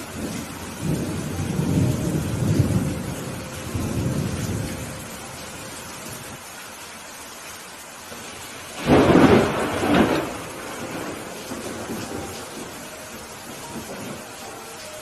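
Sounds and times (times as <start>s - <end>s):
thunder rumble: 0.0s - 6.4s, 8.1s - 14.6s
steady rain falling: 0.0s - 15.0s
sharp thunderclap: 8.7s - 12.8s.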